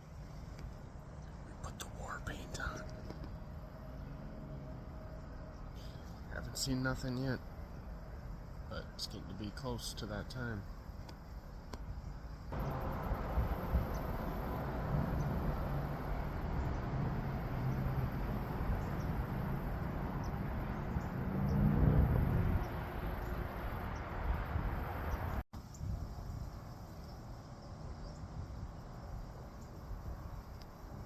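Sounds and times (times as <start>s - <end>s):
faint insect chirps: 10.4s - 21.2s, 25.1s - 31.0s
wind rumbling on microphone: 11.6s - 31.0s.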